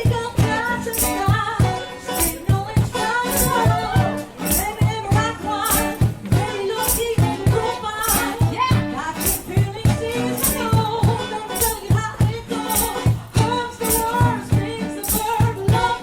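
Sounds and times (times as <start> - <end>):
steady bass line: 0.0 - 11.3
shaken hand percussion: 0.0 - 16.0
vocal trio singing in harmony: 0.0 - 16.0.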